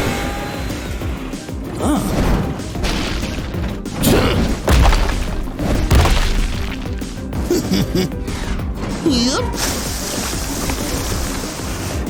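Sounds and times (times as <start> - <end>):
background music: 0.0 - 12.0
cartoon thuds and crashes: 2.0 - 9.9.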